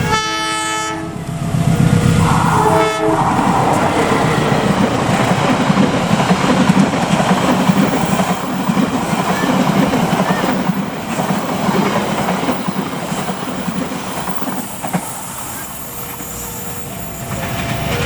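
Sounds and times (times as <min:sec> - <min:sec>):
train horn chord: 0:00.0 - 0:03.9
train passing with wheel clatter: 0:00.0 - 0:18.0.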